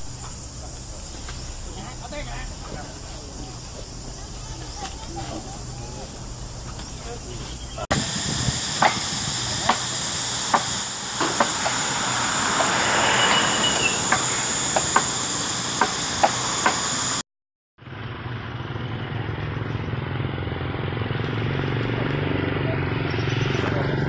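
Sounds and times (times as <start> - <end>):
high hiss and insect-like drone: 0.0 - 17.2.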